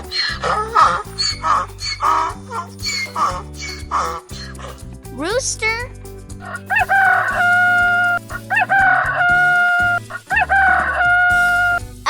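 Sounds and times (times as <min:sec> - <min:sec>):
rooster crowing: 0:06.7 - 0:11.8.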